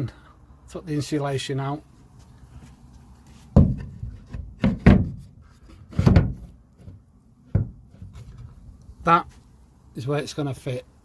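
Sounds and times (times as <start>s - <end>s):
knocks on metal van wall: 3.5s - 5.3s, 5.9s - 6.5s, 7.5s - 7.9s.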